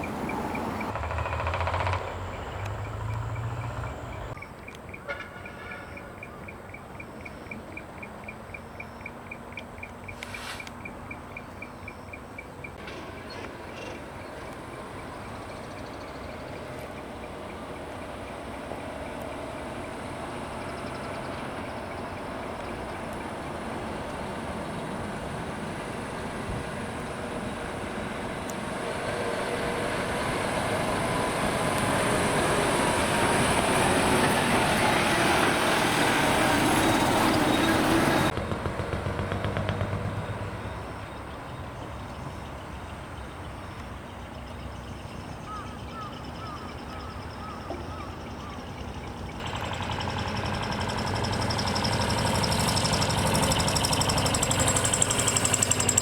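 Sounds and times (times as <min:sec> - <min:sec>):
diesel truck engine running: 0:00.0 - 0:04.4, 0:49.3 - 0:56.0.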